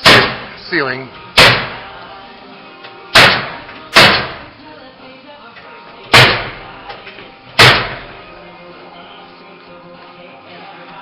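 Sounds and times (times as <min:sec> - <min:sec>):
hammer nailing into wood: 0:00.0 - 0:00.5, 0:01.4 - 0:01.9, 0:03.2 - 0:04.5, 0:06.1 - 0:06.7, 0:07.6 - 0:08.2.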